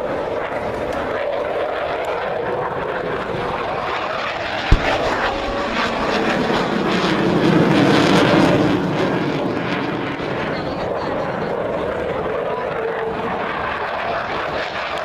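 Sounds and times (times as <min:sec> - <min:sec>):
military aircraft engine roar: 0:00.0 - 0:15.0
short thump: 0:04.7 - 0:06.1.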